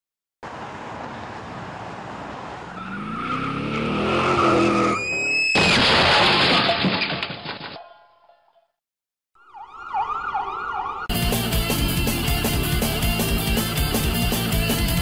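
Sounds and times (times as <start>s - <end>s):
tire squeal: 2.6s - 5.7s
car engine revving: 2.7s - 5.0s
loud crash: 5.4s - 7.8s
debris clattering: 5.6s - 8.0s.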